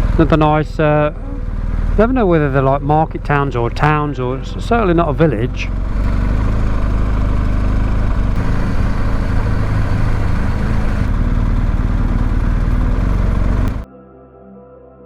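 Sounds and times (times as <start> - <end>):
road and wind noise: 0.0 - 13.8
motorcycle engine running: 0.0 - 13.9.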